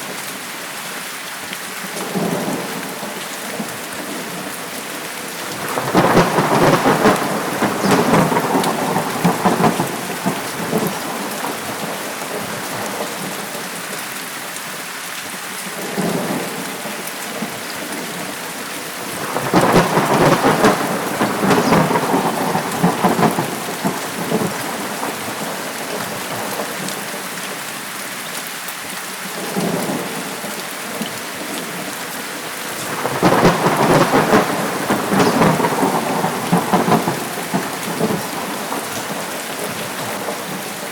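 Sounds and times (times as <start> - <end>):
heavy rain: 0.0 - 40.9
rolling thunder: 5.3 - 13.3, 17.4 - 26.8, 32.7 - 40.9.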